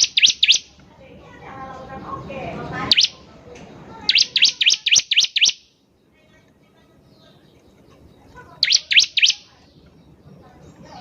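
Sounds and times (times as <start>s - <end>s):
bird rising chirps: 0.0s - 0.8s, 2.0s - 3.3s, 4.0s - 6.1s, 8.5s - 10.2s.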